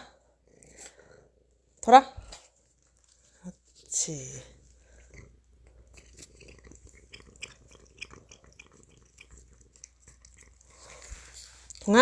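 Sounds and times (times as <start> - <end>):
cat chewing crunchy treat: 4.8 - 11.9.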